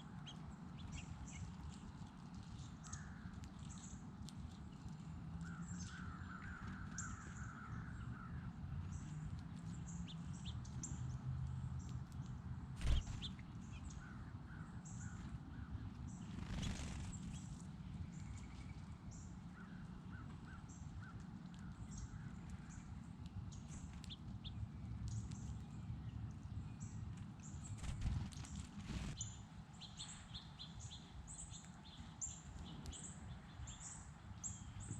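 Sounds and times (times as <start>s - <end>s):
birds calling: 12.8s - 17.4s.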